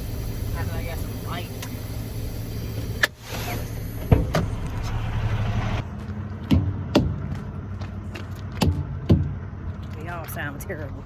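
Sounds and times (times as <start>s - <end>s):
diesel engine idling: 0.0s - 11.0s
truck tires thudding: 2.7s - 10.5s.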